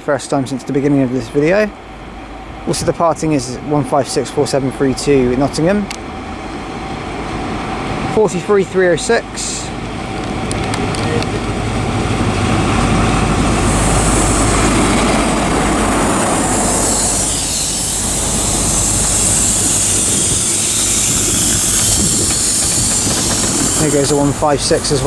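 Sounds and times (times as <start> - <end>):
diesel train engine and wheels: 0.0 - 25.0
high hiss: 12.2 - 25.0.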